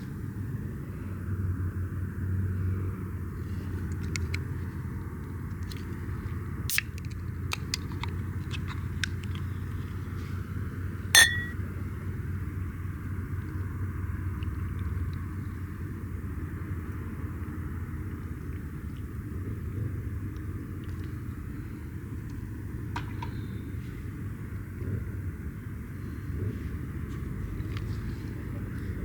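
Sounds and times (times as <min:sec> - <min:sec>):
sharp ringing clink: 0:11.2 - 0:11.6.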